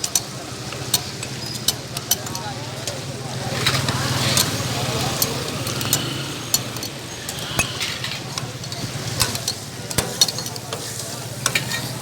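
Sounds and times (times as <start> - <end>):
spatula clinking on pan: 4.4 - 12.0.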